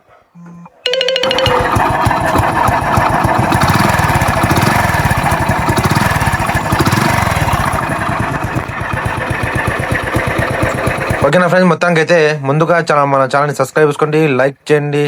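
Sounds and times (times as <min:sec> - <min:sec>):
motorcycle engine revving: 0:01.3 - 0:11.4.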